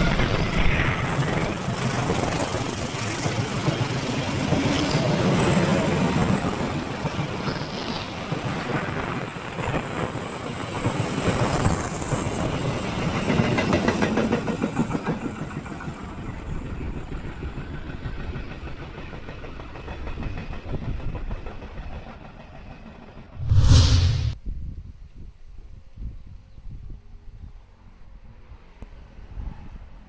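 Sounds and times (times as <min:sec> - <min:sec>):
loud thump: 0:23.4 - 0:24.4.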